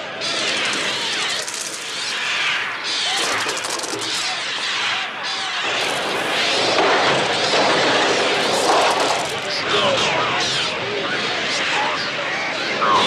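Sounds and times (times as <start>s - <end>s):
flapping wings: 0.2s - 9.6s.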